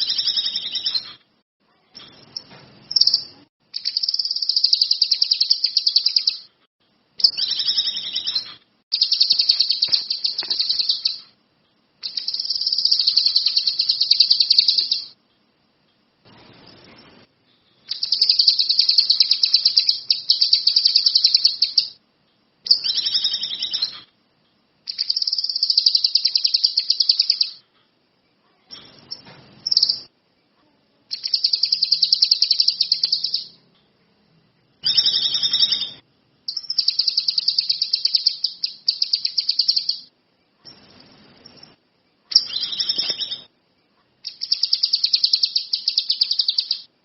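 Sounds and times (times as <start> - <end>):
songbird singing chattering notes: 2.0 - 6.5, 7.2 - 11.4, 12.0 - 15.2, 17.8 - 22.0, 24.9 - 27.6, 31.1 - 33.6, 34.8 - 43.5, 44.2 - 46.9.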